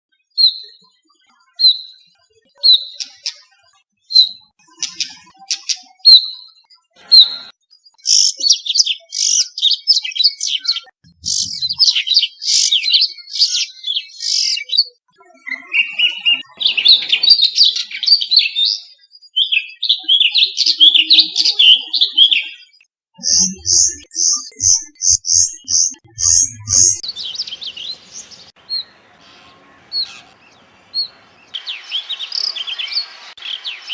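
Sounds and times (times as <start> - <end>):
bird chattering song: 0.2 - 33.9.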